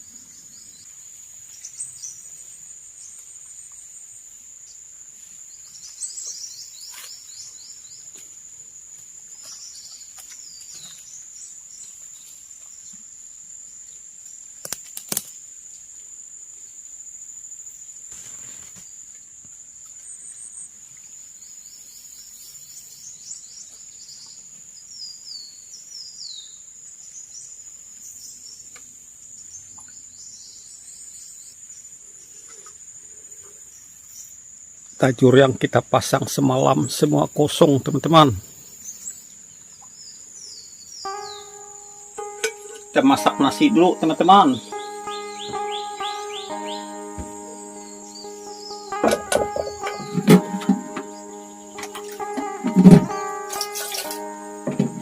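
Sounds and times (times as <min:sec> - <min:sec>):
insects droning: 0:00.0 - 0:55.0
birds chirping: 0:41.1 - 0:55.0.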